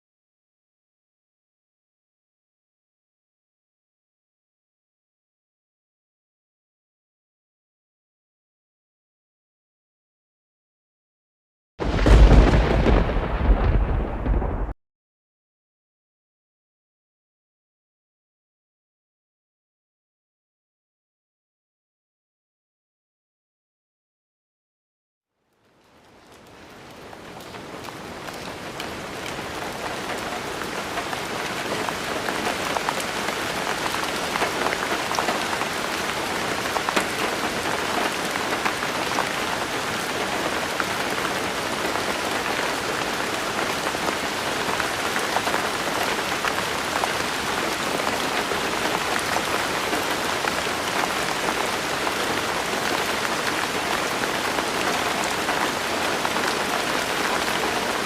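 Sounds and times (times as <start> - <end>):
steady rain falling: 11.8 - 14.8, 25.4 - 58.0
raindrops ticking: 25.5 - 38.8.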